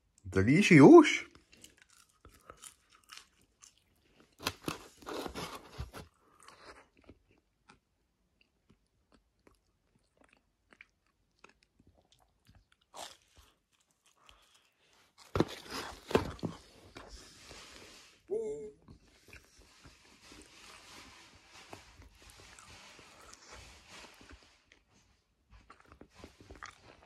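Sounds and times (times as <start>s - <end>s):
chewing: 1.3s - 7.8s, 8.4s - 16.5s, 18.9s - 20.6s, 25.6s - 27.0s
crunchy bites: 1.4s - 5.6s.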